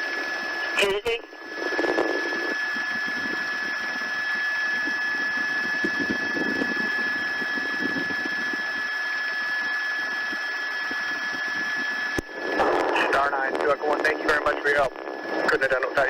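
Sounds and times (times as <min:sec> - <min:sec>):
high-pitched whine: 0:00.0 - 0:16.0
helicopter cabin hiss: 0:12.3 - 0:16.0.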